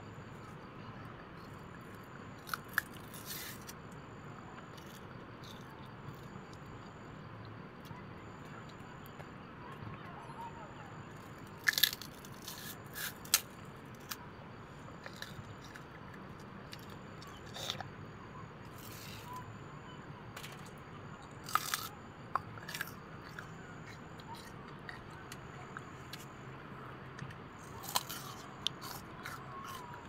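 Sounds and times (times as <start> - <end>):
faint low hum: 0.0 - 30.0
person crunching a snack: 2.4 - 3.8, 4.7 - 6.3, 11.6 - 14.2, 15.0 - 15.9, 20.4 - 26.3, 27.2 - 30.0.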